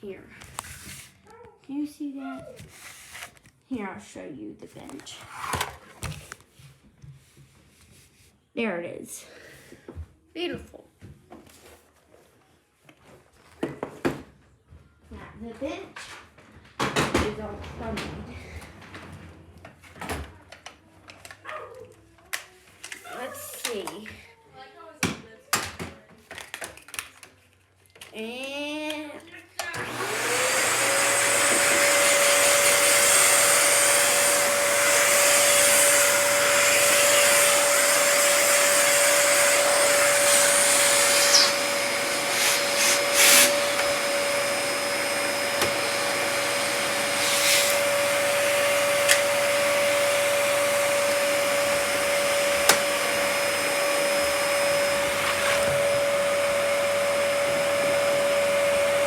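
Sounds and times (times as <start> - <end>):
vacuum cleaner running: 16.8 - 20.3, 29.6 - 59.0.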